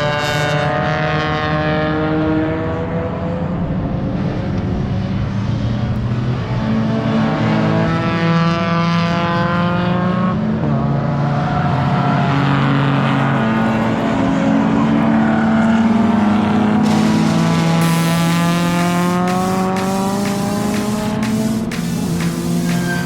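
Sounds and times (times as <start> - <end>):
race car engines revving: 6.3 - 23.0.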